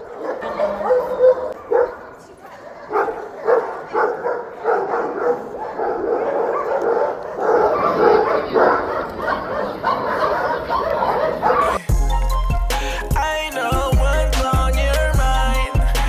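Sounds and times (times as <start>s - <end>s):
many dogs barking and yipping: 0.0s - 12.8s.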